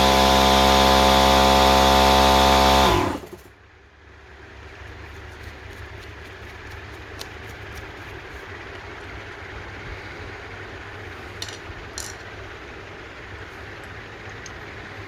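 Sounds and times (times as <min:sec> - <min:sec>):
machine winding down: 0:00.0 - 0:03.4
motor machine running: 0:00.0 - 0:03.5.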